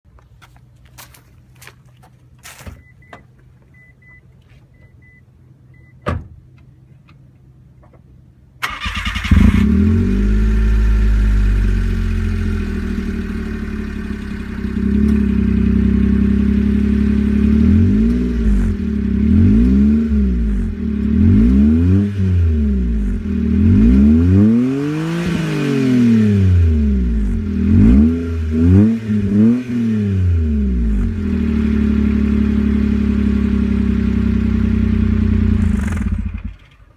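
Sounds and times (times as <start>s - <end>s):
short beeps: 2.8s - 6.1s
car engine cranking and revving: 8.6s - 36.9s.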